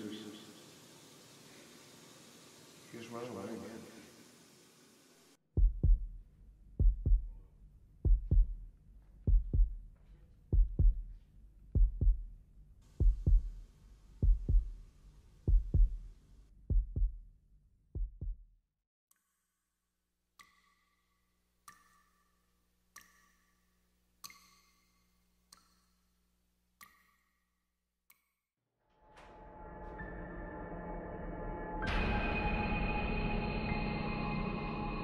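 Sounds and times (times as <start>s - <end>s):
heartbeat double thumps: 5.5s - 7.4s, 8.0s - 9.9s, 10.5s - 12.4s, 13.0s - 13.6s, 14.2s - 14.8s, 15.5s - 17.2s, 18.0s - 18.5s.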